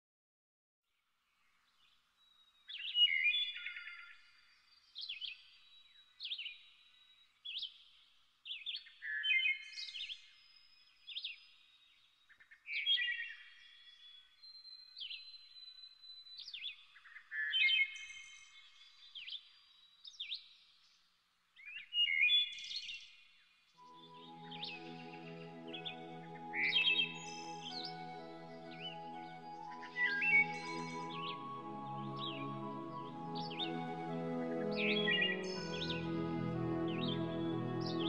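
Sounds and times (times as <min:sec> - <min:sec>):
songbirds chirping: 0:01.3 - 0:38.0
thin high whistle: 0:23.8 - 0:38.0.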